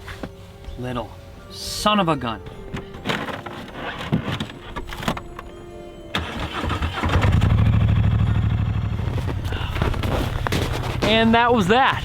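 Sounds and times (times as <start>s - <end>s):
vehicle engine running: 6.2s - 11.1s.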